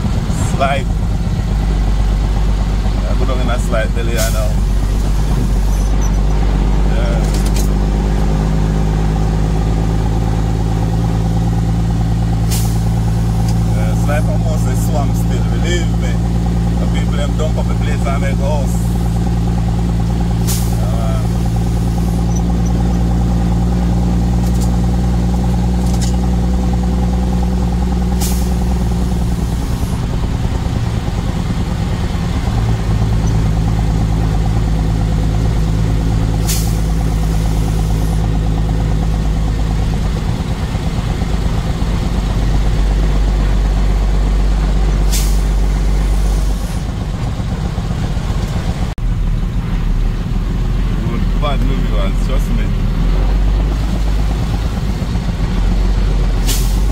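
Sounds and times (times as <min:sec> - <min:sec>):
truck engine running: 0:00.0 - 0:56.9
air hisses: 0:12.4 - 0:13.5, 0:20.4 - 0:22.3.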